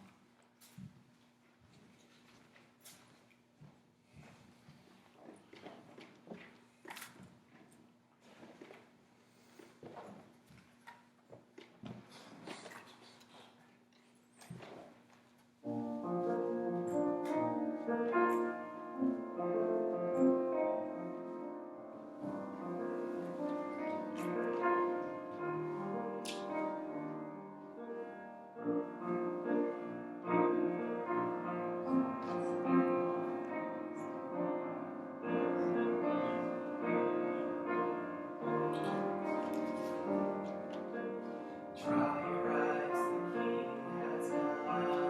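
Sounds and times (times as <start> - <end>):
piano playing slow chords: 15.6 - 45.0.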